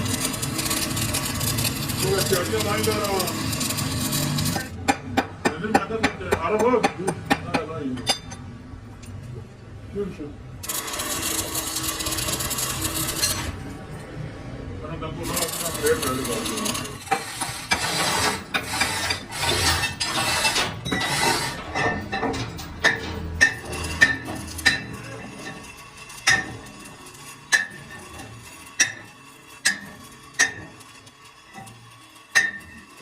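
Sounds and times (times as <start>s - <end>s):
metal scraping and clattering: 0.0s - 4.8s, 10.6s - 14.1s, 15.2s - 33.0s.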